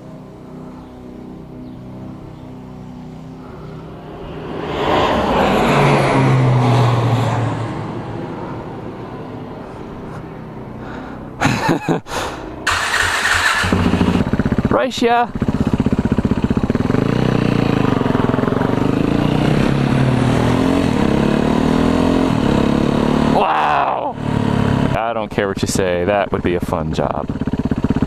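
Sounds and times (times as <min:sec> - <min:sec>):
engine idling hum: 0:00.0 - 0:04.6, 0:07.4 - 0:21.2, 0:23.7 - 0:28.0
vehicle passing by: 0:00.0 - 0:14.6, 0:16.6 - 0:25.2
motorcycle engine bursts: 0:12.6 - 0:28.0.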